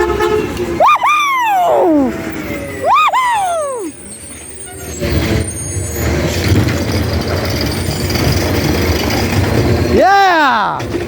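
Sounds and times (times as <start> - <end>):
truck diesel engine rumble: 0.0 - 11.0.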